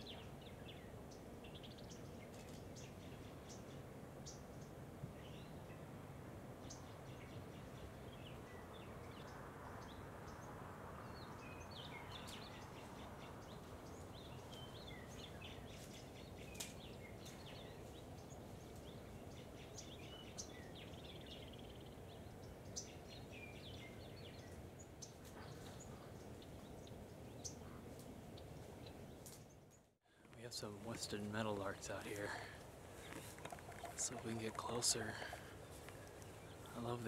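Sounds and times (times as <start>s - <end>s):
small birds chirping: 0.0s - 5.9s, 6.5s - 37.0s
faint steady hiss: 27.9s - 37.0s.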